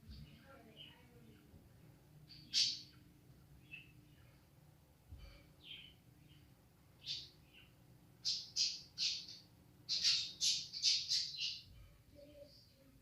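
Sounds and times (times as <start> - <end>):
bird squawking: 8.2 - 11.6.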